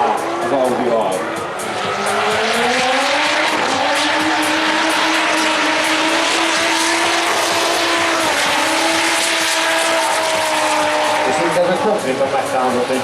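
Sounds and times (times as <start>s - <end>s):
car engine at high revs: 0.0s - 13.0s.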